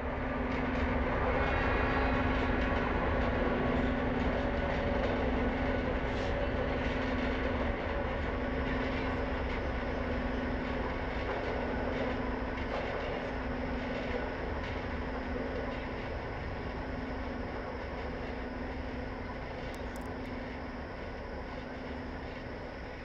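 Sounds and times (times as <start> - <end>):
low ambient drone hum: 10.8 - 23.0.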